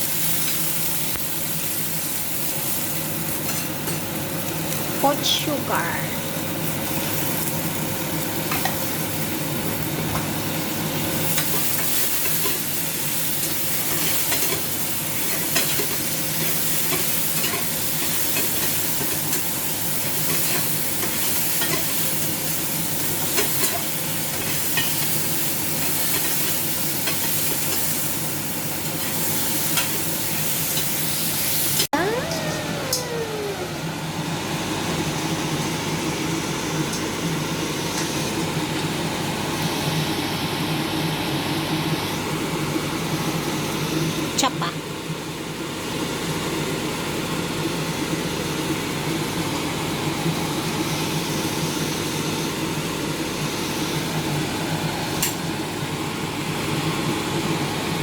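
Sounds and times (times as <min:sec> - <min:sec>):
food sizzling in a pan: 0:00.0 - 0:33.9.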